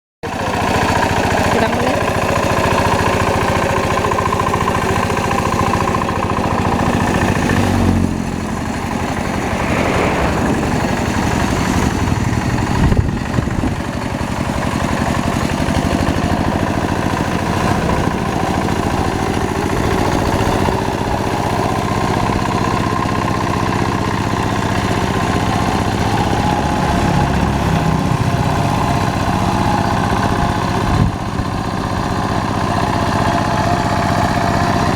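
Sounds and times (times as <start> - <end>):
hand tractor engine running: 0.2 - 9.3, 11.0 - 34.9.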